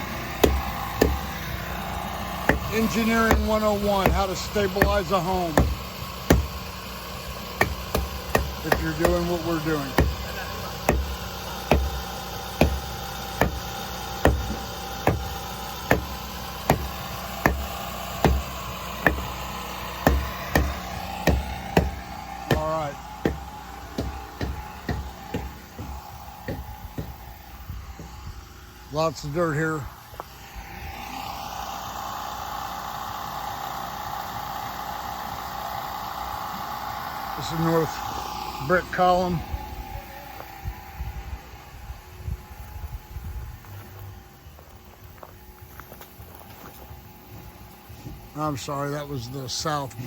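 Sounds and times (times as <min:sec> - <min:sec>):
machine whine with rushing hiss: 0:00.0 - 0:50.0
hammer blows: 0:07.6 - 0:28.2.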